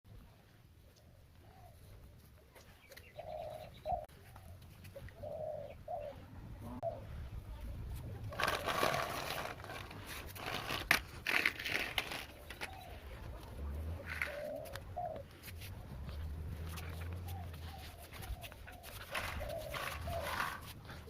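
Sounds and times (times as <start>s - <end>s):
pigeon cooing: 2.6s - 7.2s, 12.3s - 21.0s.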